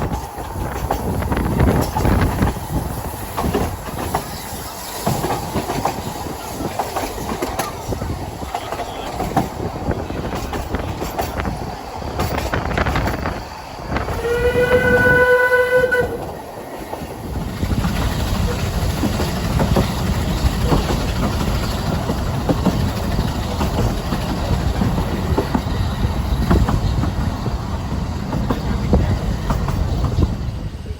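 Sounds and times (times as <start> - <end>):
train running rumble: 0.0 - 30.9
train whistle blast: 14.0 - 16.4.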